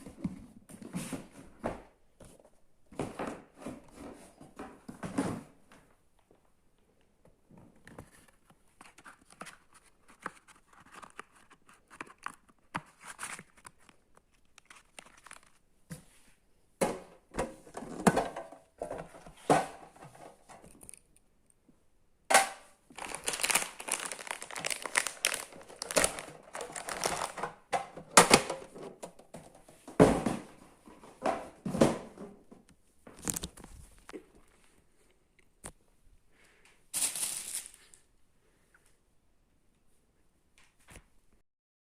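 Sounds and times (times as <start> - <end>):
packaging crinkling and tearing: 8.9 - 15.6, 22.9 - 27.6, 33.2 - 33.8, 37.0 - 38.0.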